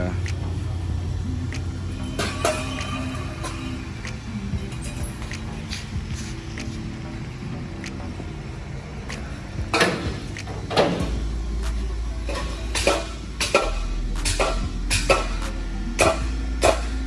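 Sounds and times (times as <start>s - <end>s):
metallic clanks of tools and parts: 0.0s - 7.6s, 9.1s - 17.0s
steady low hum: 0.0s - 17.0s.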